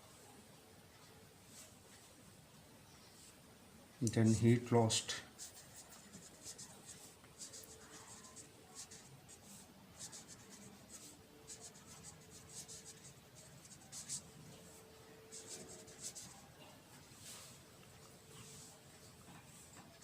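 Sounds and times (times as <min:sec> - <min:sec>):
pen scratching on surface: 0:05.4 - 0:14.3, 0:15.3 - 0:16.4.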